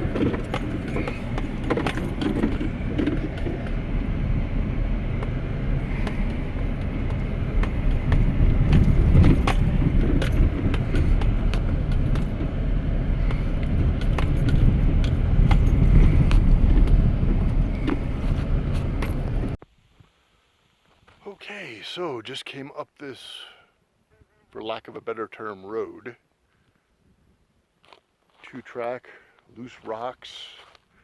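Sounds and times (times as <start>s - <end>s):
tires knocking over rocks: 0.0s - 19.6s
truck engine pulling: 0.0s - 19.6s.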